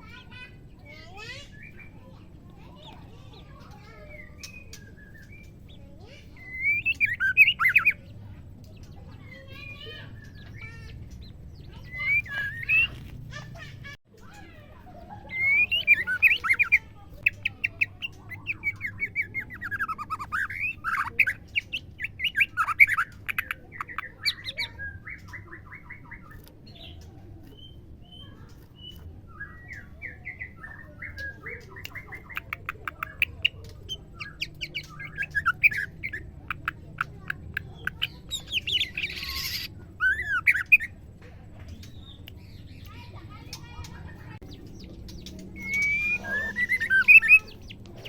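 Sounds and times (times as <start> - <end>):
bird calling with whistles and chatter: 0.0 - 41.0, 41.6 - 48.0.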